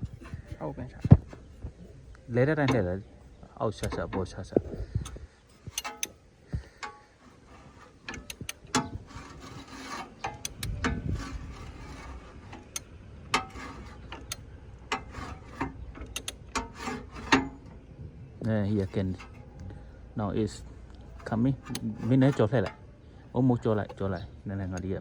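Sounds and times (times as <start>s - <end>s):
hand tools clicking and scraping: 0.0s - 25.0s.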